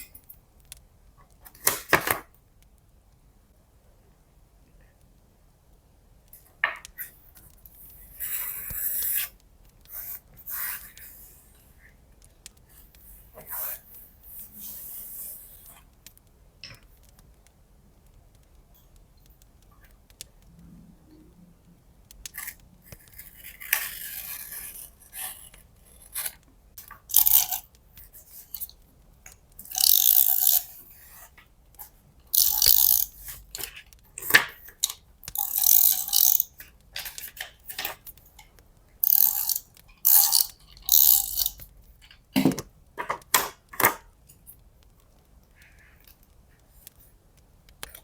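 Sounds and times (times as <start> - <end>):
tape being peeled off roll: 7.0 - 11.6, 22.3 - 42.2.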